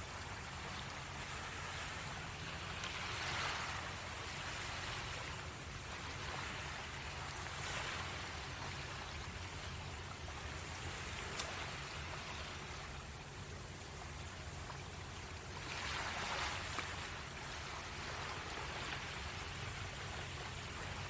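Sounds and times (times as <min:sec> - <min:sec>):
waves washing on shore: 0:00.0 - 0:21.0
campfire crackles: 0:00.1 - 0:15.8.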